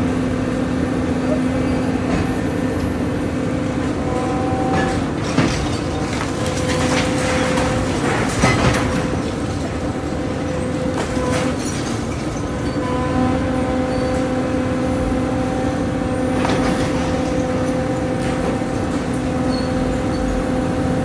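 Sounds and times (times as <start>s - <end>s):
excavator diesel engine: 0.0s - 21.0s
debris crunching and cracking: 4.7s - 12.7s, 16.4s - 19.2s.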